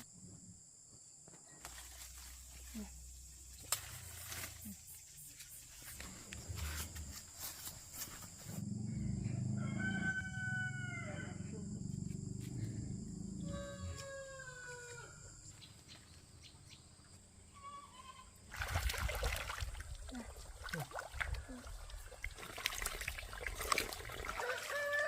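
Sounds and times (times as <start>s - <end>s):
low rumble: 8.6s - 10.4s
rooster crowing: 9.1s - 11.6s, 13.4s - 15.4s, 24.3s - 25.0s.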